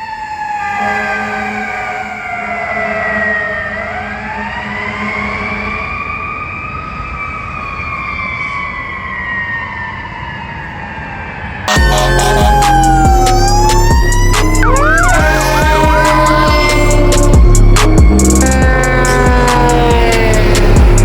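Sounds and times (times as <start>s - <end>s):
fire engine siren wailing: 0.0s - 21.0s
low rumble: 12.3s - 21.0s.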